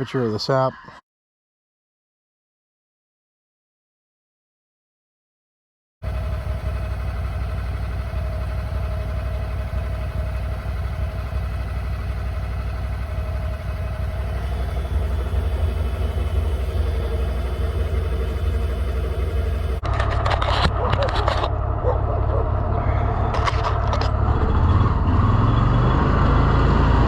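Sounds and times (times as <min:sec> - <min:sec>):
utility vehicle engine running: 0:06.0 - 0:27.0.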